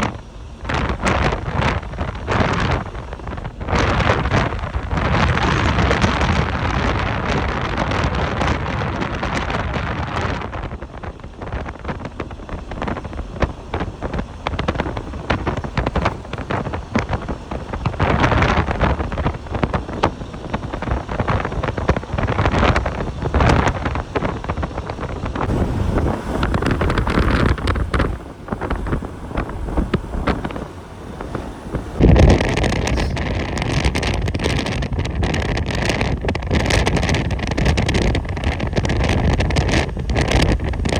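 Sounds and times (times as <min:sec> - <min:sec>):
wind buffeting microphone: 0:00.0 - 0:40.9
faint steady whine: 0:10.8 - 0:40.9
vehicle driving rumble: 0:11.9 - 0:40.9.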